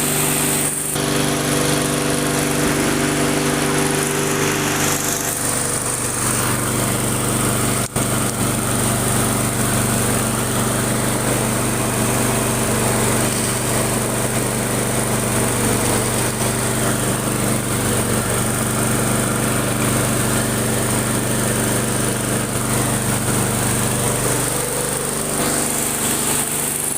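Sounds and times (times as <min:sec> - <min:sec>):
lawn mower engine running: 0:00.0 - 0:26.9.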